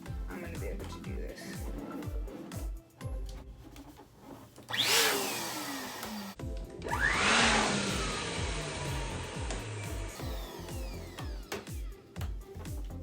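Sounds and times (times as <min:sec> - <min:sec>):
background music with beat: 0:00.0 - 0:04.2, 0:06.4 - 0:13.0
balloon air pump running: 0:03.4 - 0:11.9.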